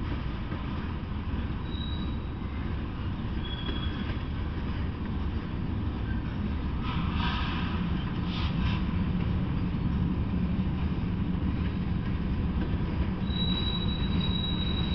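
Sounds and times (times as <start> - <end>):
train wheels rumbling on track: 0.0 - 14.9
wheels screeching: 13.2 - 14.9.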